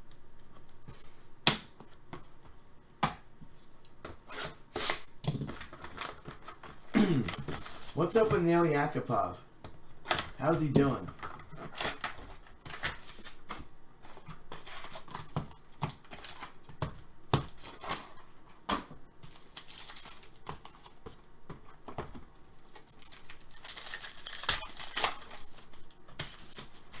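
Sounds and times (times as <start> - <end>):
cards clicking and rustling: 5.2 - 8.5, 10.0 - 27.0
card packs tearing open: 5.3 - 8.4, 19.2 - 21.0, 22.6 - 27.0
wrappers crinkling: 5.4 - 8.9, 17.4 - 21.0, 22.3 - 27.0.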